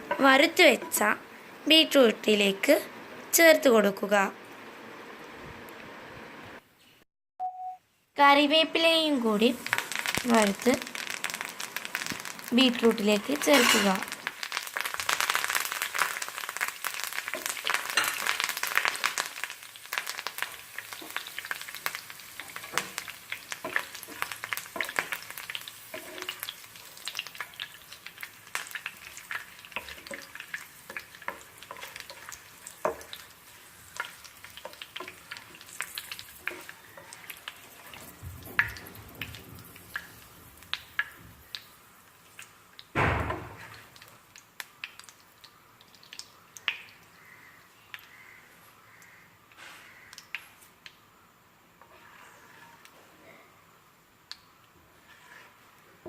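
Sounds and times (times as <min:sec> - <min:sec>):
leaves crackling in hot oil: 0:08.9 - 0:49.2, 0:54.2 - 0:56.0.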